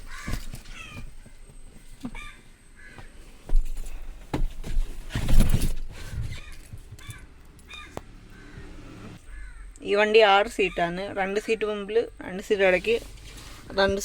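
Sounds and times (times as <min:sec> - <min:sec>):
rustling: 0:00.0 - 0:08.5, 0:12.6 - 0:14.0.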